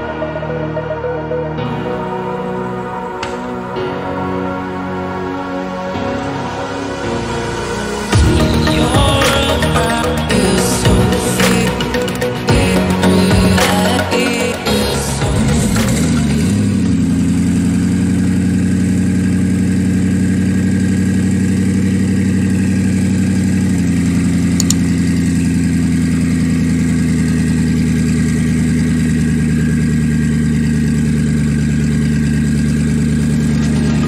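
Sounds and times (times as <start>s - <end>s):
car engine idling: 7.2s - 34.0s.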